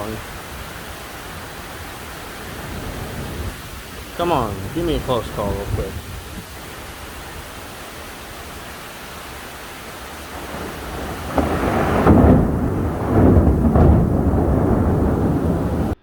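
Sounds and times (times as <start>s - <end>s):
thunder crack and rumbling: 0.0s - 6.5s, 9.8s - 16.0s
rain hiss: 0.0s - 16.0s.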